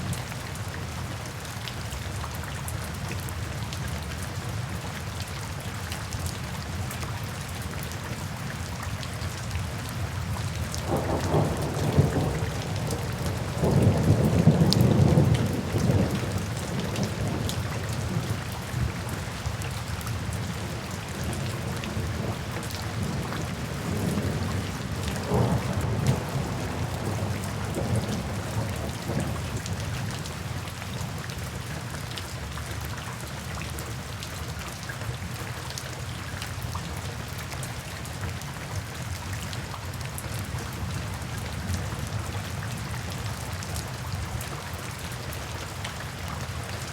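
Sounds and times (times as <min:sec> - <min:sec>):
heavy rain: 0:00.0 - 0:46.9
thunder rumbling: 0:10.8 - 0:18.4, 0:21.6 - 0:29.7.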